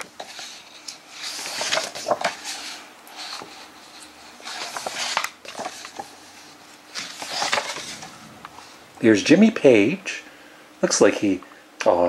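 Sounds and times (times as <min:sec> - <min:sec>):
book pages turning: 0:00.0 - 0:09.0.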